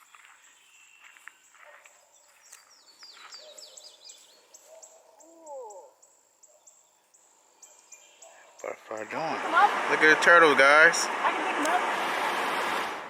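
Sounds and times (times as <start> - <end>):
low bird hooting call: 4.7 - 6.0.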